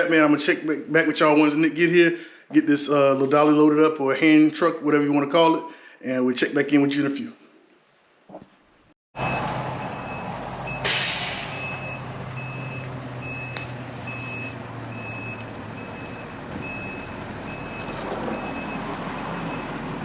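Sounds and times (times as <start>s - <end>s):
truck back-up alarm beeping: 9.2s - 20.0s
truck engine running: 9.2s - 20.0s
air release hiss: 10.8s - 11.6s.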